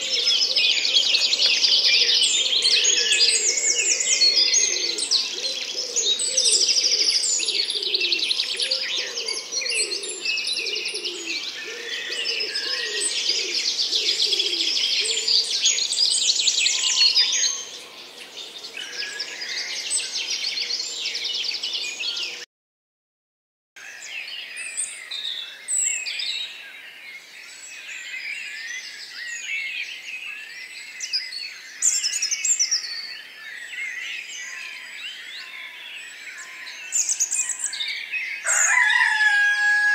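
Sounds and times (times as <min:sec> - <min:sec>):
small birds chirping and trilling: 0:00.0 - 0:22.4, 0:23.8 - 0:39.9
lower repeated bird calls: 0:00.0 - 0:22.5.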